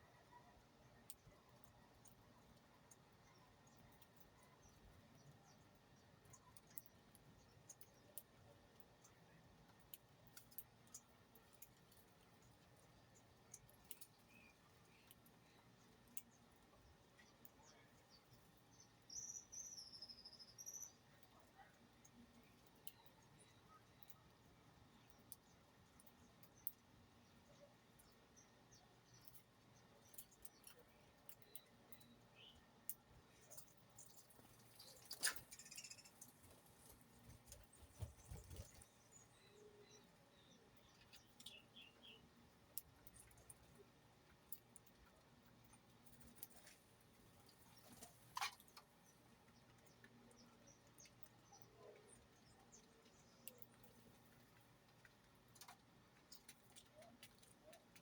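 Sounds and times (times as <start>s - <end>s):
small bird chirps: 0.0s - 9.4s, 10.4s - 43.9s, 45.5s - 54.5s
faint high-pitched ticks: 0.1s - 58.0s
upward-sweeping bird chirp: 34.0s - 36.6s.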